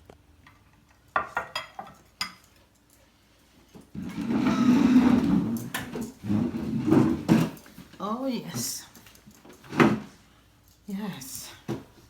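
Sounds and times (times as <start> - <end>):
rough steady kitchen noise: 0.0 - 12.0
dishware and utensils clinking: 1.1 - 2.6.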